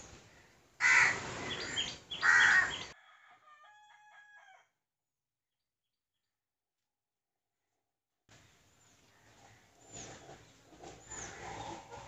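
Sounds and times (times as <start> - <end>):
harsh bird calls: 0.0 - 3.0, 9.2 - 12.0.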